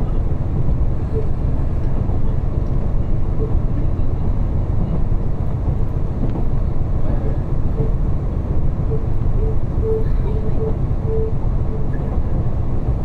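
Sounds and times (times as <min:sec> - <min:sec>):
railcar engine and wheels rumbling: 0:00.0 - 0:13.0.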